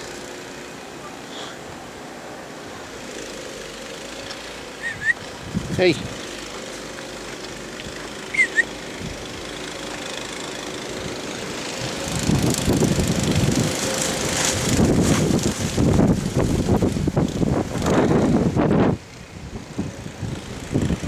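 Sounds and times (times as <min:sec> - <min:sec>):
short high chirps: 0:04.8 - 0:05.2, 0:08.3 - 0:08.7
wind buffeting microphone: 0:04.9 - 0:06.3, 0:08.8 - 0:09.5, 0:10.9 - 0:21.0.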